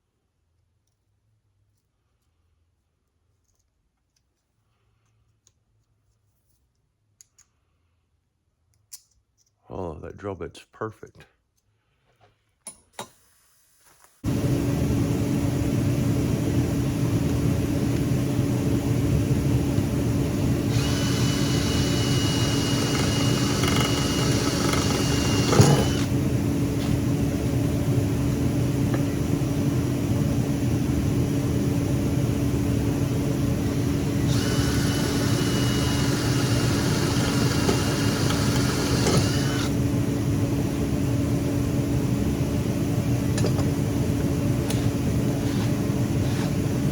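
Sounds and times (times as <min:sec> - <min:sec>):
drill motor running: 0:16.4 - 0:27.6, 0:32.7 - 0:39.8
drill bit squealing into metal: 0:20.7 - 0:26.1.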